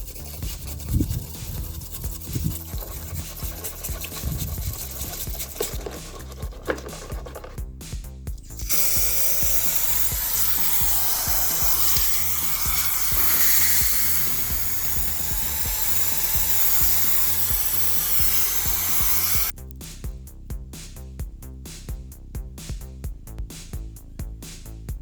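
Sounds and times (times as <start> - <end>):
background music: 0.0 - 25.0
handheld power tool hissing: 0.9 - 7.5, 8.4 - 19.5.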